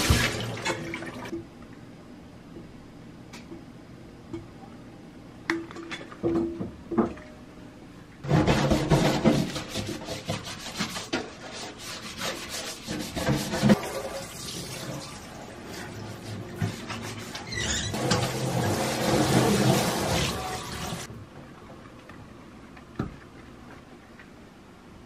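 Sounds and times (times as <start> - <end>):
water running into sink: 0.0 - 1.3, 13.5 - 21.1
gloved hands scrubbing metal sink: 8.2 - 14.0, 15.6 - 21.1.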